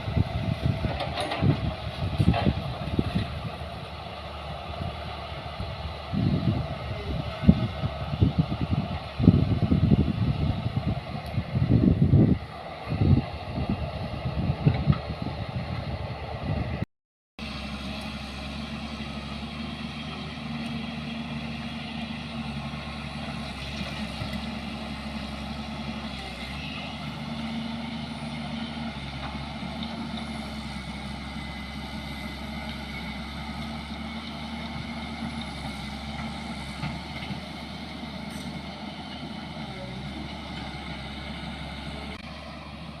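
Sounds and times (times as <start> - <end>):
gusty low rumbling: 0.0 - 16.8
heavy vehicle engine humming: 0.0 - 16.8, 17.4 - 43.0.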